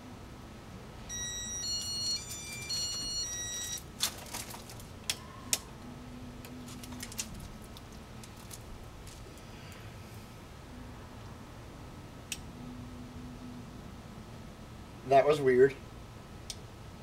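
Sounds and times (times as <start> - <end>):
faint steady hum: 0.0 - 17.0
electronic beeping jingle: 1.1 - 3.8.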